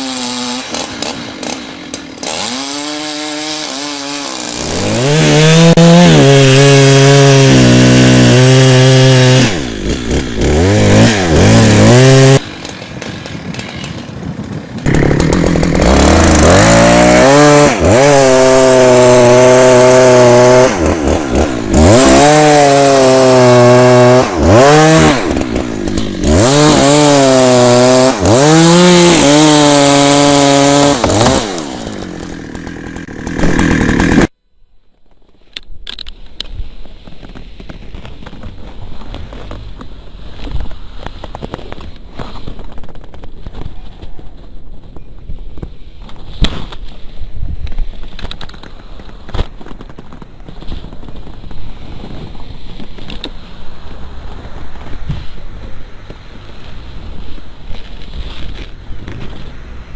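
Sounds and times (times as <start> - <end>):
chainsaw revving: 0.0 - 34.4.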